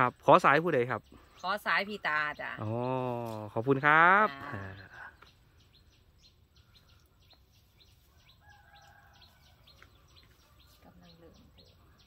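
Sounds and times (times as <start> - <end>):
small bird chirping: 0.0 - 12.0.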